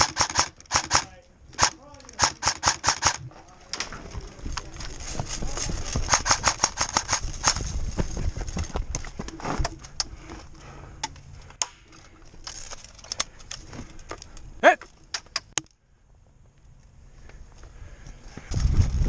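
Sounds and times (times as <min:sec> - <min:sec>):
airsoft gun shots: 0:00.0 - 0:03.2
person shouting: 0:14.6 - 0:14.8.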